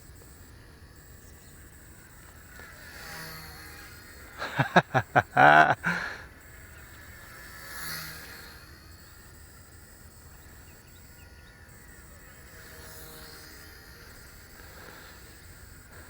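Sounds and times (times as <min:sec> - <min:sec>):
rc helicopter motor whining: 0:00.0 - 0:05.0, 0:05.8 - 0:16.0
loud short cries: 0:04.4 - 0:06.2.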